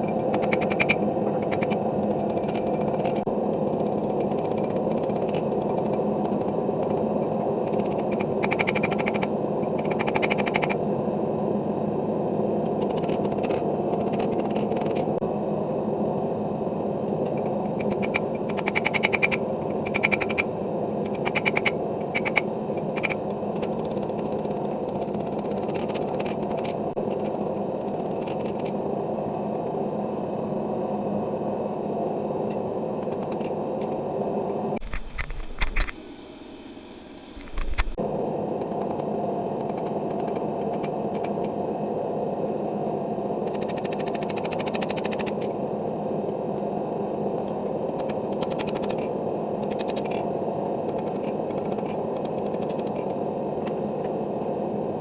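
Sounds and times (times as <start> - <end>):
sharp clicks and clatters: 0.0 - 7.1, 7.7 - 10.8, 12.7 - 15.1, 17.3 - 20.4, 21.0 - 28.7, 43.5 - 45.5, 47.9 - 50.2, 50.8 - 53.0
forge rushing noise: 0.0 - 55.0.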